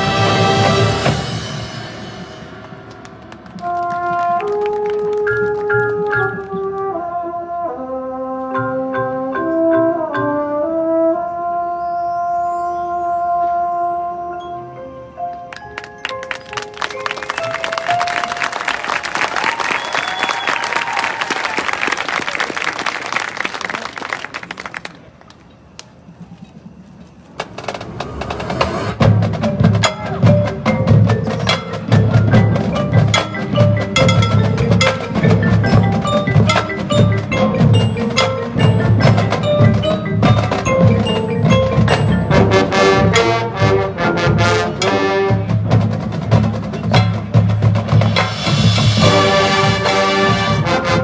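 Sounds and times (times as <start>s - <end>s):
brass band playing: 0.0s - 12.6s, 16.0s - 23.2s, 29.0s - 51.0s
mallet percussion playing: 15.5s - 19.5s, 29.1s - 43.6s.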